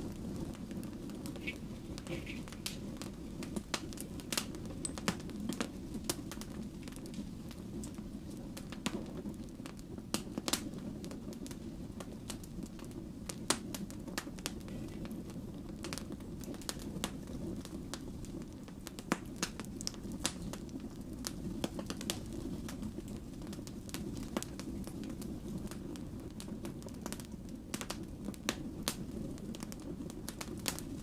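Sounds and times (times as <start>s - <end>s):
fire roaring: 0.0s - 31.0s
logs crackling and popping: 0.0s - 31.0s.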